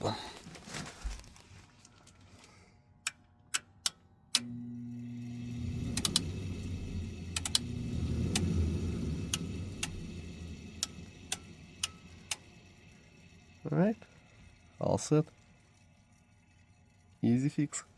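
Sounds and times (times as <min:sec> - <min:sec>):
furnace motor humming: 0:01.8 - 0:17.9
relay clicks: 0:03.1 - 0:16.6.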